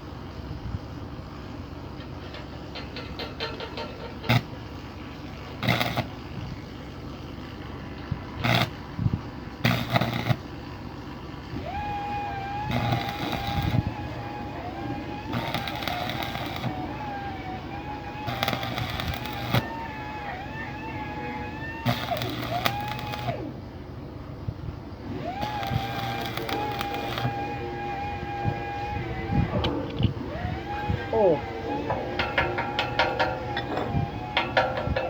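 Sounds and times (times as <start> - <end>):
electric arc welding: 4.2 - 4.6, 5.2 - 6.3, 8.3 - 10.8, 11.6 - 23.4, 25.2 - 29.4.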